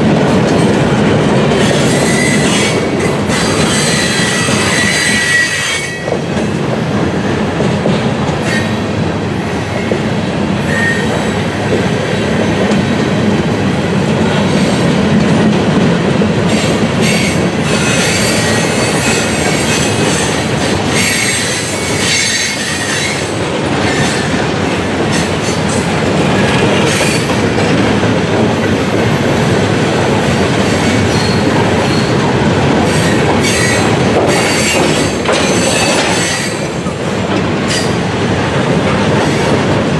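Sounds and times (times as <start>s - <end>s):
steel wheels rumbling on rail: 0.0s - 39.9s
high wheel squeals: 30.7s - 32.2s, 32.9s - 36.8s.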